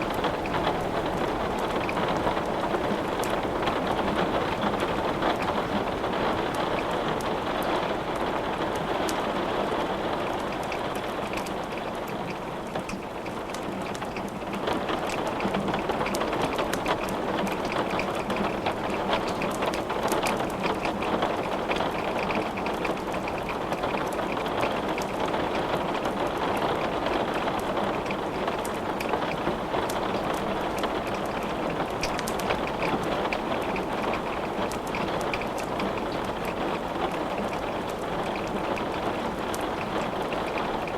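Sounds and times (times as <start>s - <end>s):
heavy rain: 0.0s - 40.9s
wood crackling in fireplace: 10.3s - 40.9s.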